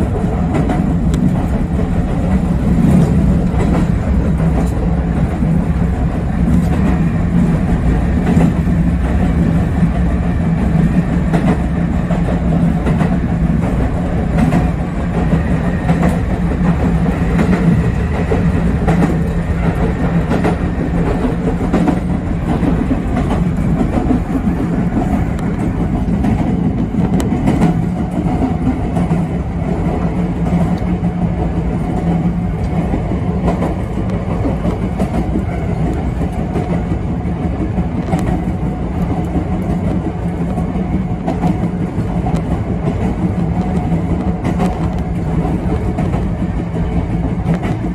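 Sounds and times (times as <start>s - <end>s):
electric train running rumble: 0.0s - 47.9s
wheels clicking over rail joints: 0.0s - 47.9s.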